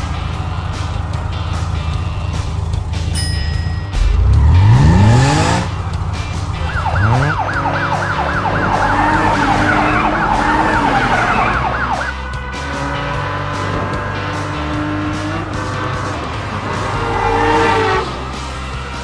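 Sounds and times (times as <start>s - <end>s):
engine revving: 0.0s - 3.1s, 3.9s - 19.0s
emergency siren yelping: 6.6s - 12.3s.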